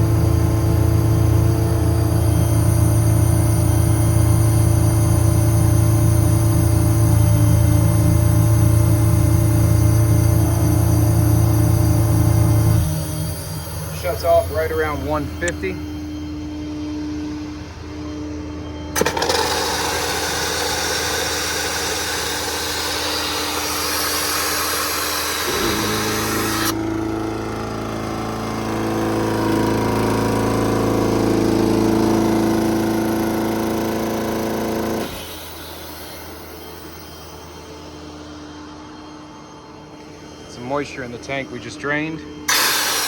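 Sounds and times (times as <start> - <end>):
steady machine hum: 0.0 - 43.0
compressed air hissing: 42.5 - 43.0.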